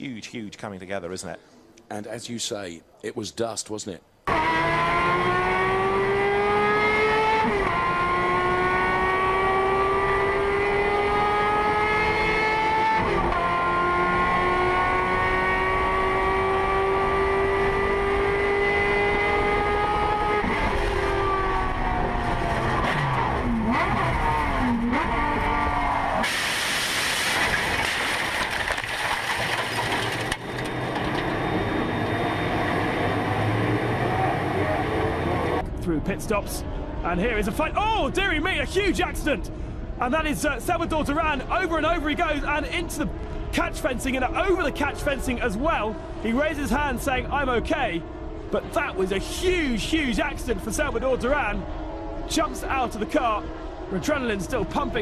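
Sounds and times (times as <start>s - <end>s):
racing car engine revving: 4.3s - 28.3s, 29.5s - 35.7s, 41.3s - 55.0s.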